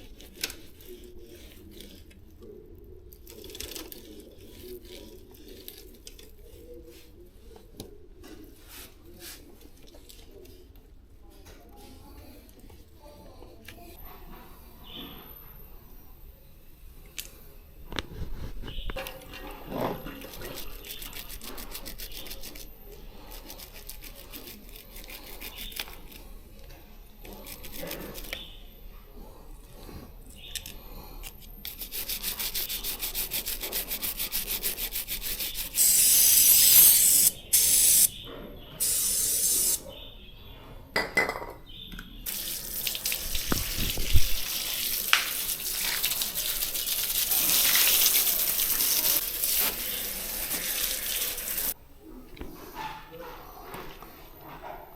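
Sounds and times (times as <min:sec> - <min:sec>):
water and rubbing on bicycle chain: 0:00.0 - 0:02.4, 0:03.2 - 0:07.2, 0:19.4 - 0:26.4, 0:31.2 - 0:38.1, 0:38.8 - 0:39.8, 0:42.3 - 0:51.8
bicycle chain clicking: 0:35.8 - 0:38.1
spray hiss: 0:35.8 - 0:38.1, 0:38.8 - 0:39.8.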